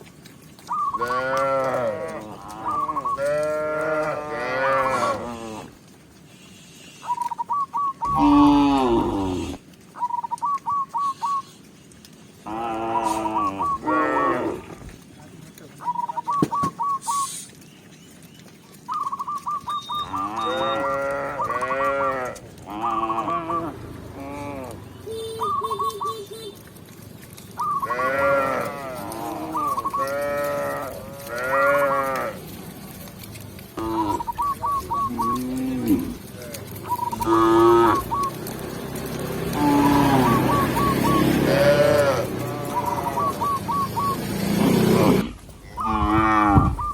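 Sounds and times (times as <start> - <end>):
cows mooing: 1.0 - 5.8, 8.0 - 9.6, 12.4 - 14.8, 19.9 - 24.9, 27.7 - 32.6, 33.8 - 46.9.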